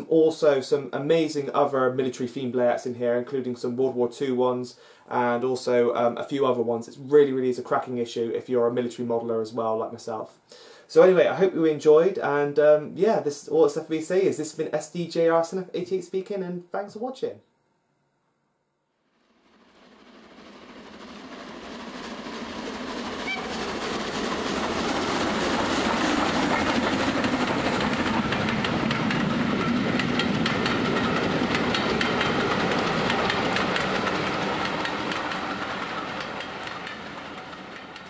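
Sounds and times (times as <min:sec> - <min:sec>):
train rumbling on rails: 0:19.5 - 0:38.0
wheels clicking over track: 0:22.8 - 0:38.0.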